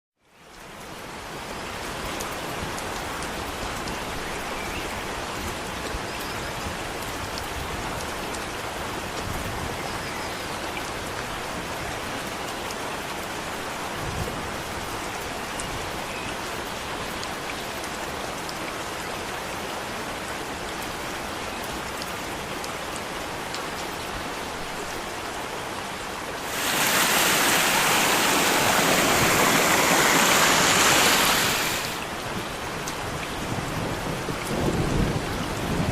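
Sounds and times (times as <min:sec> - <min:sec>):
waterfall roaring: 0:24.4 - 0:33.0.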